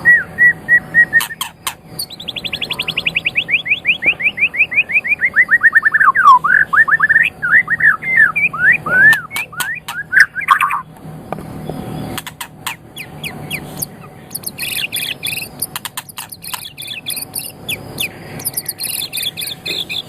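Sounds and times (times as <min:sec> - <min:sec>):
bird singing whistled trill: 0:00.0 - 0:10.9, 0:13.0 - 0:20.0
varied whistled bird phrases: 0:00.0 - 0:10.9, 0:13.0 - 0:20.0
sharp clicks: 0:08.9 - 0:11.5, 0:12.1 - 0:19.9.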